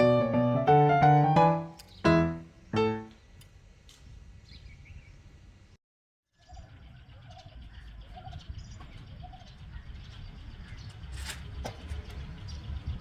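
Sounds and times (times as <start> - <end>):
sharp rustling noise: 11.0 - 12.0.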